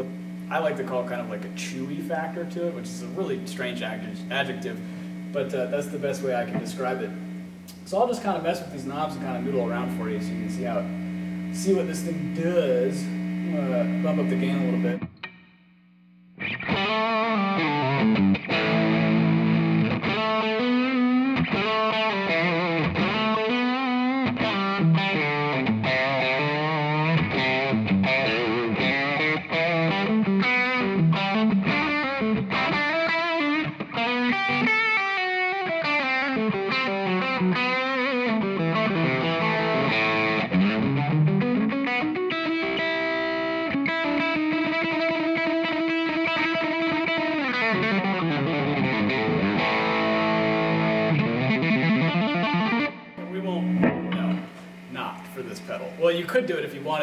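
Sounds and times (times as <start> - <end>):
overdriven electric guitar lead: 0.0 - 15.5, 16.4 - 56.2.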